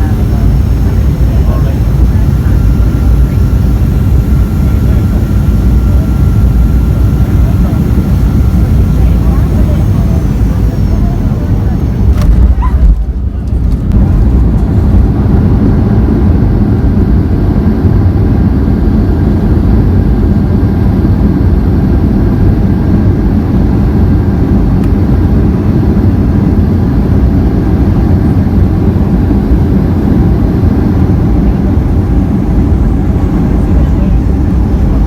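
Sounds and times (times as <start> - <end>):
faint engine tones: 0.0 - 17.9, 27.9 - 35.0
aircraft cabin engine rumble: 0.0 - 35.0.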